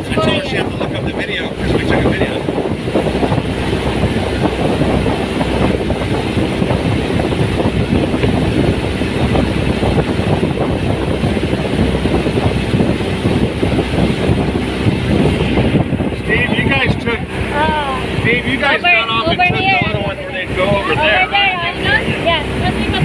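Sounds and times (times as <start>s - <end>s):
motorboat engine rumbling: 0.0s - 23.0s.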